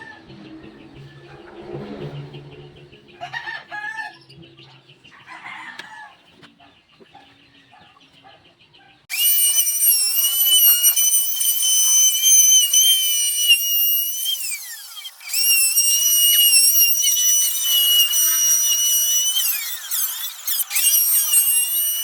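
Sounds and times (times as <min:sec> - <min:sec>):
rooster crowing: 0:03.2 - 0:04.2
high-pitched whine: 0:09.1 - 0:22.0.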